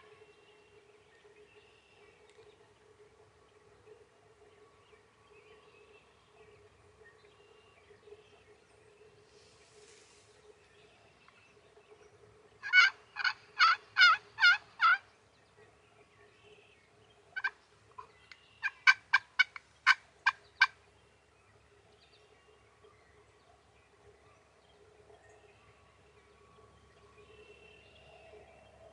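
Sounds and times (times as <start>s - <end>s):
turkey clucks: 12.6s - 15.0s, 17.4s - 20.8s
turkey yelps: 12.6s - 15.0s.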